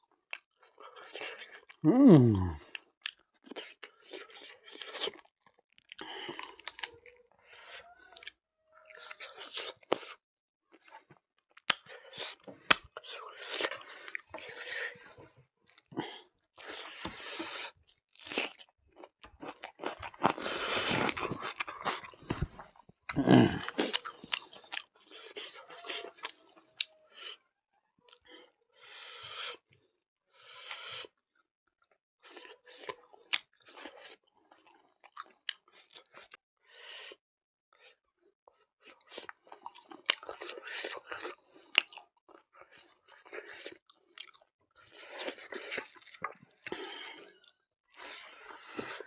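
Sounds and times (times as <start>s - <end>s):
person chewing food: 0.1s - 27.5s, 31.8s - 37.2s, 37.8s - 49.0s.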